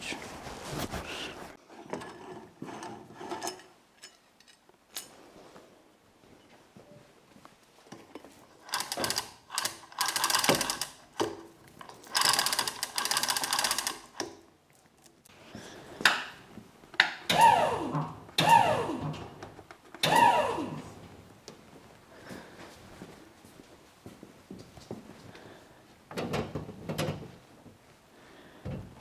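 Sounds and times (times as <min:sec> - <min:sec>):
mechanical rattling and whirring: 0:08.7 - 0:11.0, 0:11.9 - 0:14.2.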